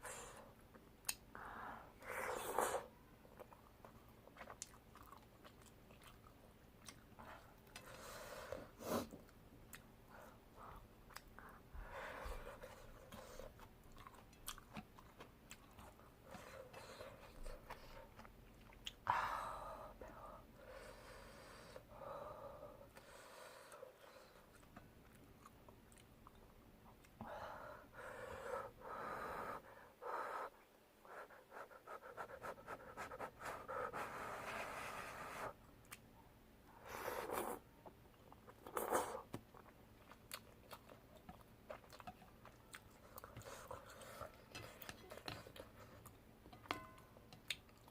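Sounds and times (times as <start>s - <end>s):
chewing rice cakes: 3.3s - 8.1s, 12.2s - 19.1s, 37.2s - 47.9s.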